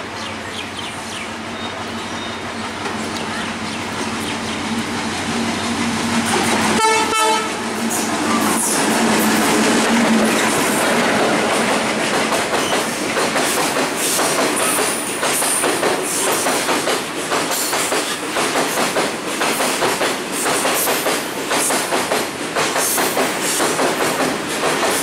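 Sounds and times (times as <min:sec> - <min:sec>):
wheels clacking over rail joints: 0:07.7 - 0:25.0.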